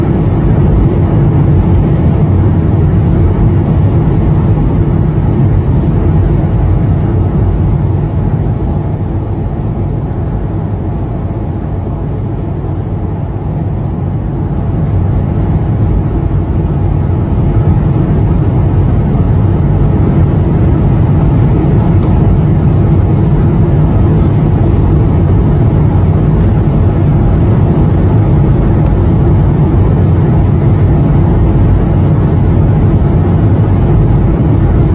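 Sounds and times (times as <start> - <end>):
airliner cabin engine drone: 0.0 - 34.9.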